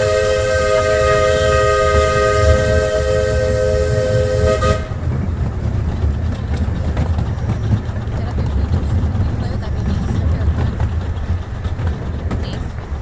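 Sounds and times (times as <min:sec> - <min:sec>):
steam locomotive chime whistle: 0:00.0 - 0:05.1
train rumbling on rails: 0:00.0 - 0:13.0.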